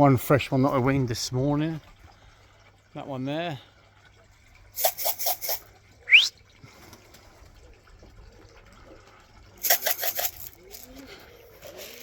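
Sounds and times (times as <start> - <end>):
grain rattling in a tin: 4.8 - 5.6, 9.6 - 12.0
short sharp rising whistle: 6.1 - 6.3.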